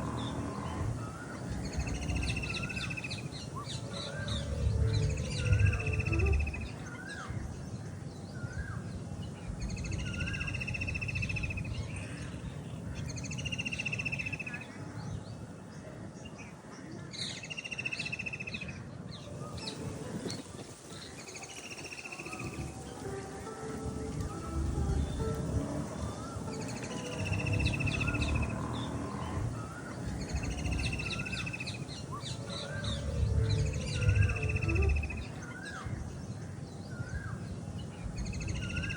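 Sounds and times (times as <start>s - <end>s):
bird rising notes: 0.0s - 7.2s, 19.4s - 36.0s
bird trilling: 0.0s - 7.3s, 19.5s - 35.9s
low background rumble: 0.0s - 13.4s, 22.4s - 38.9s.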